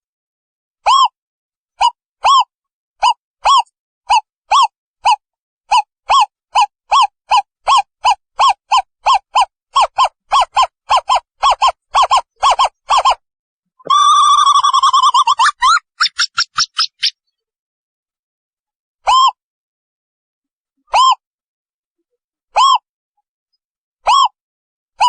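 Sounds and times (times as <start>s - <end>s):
owl trilling: 13.9s - 17.2s.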